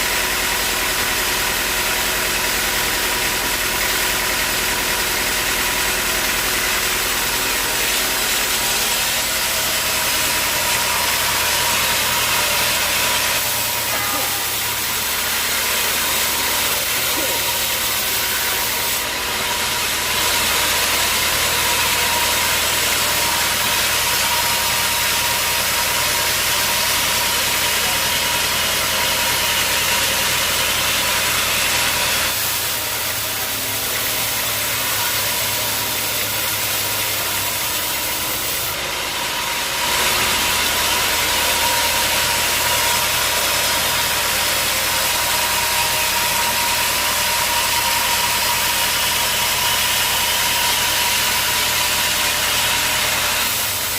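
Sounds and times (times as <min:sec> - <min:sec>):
sawmill machinery running: 0:00.0 - 0:53.9.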